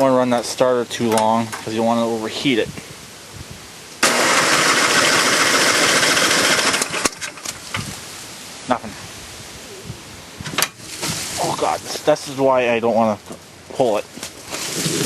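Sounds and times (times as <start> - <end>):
electric starter cranking engine: 4.0 - 7.6.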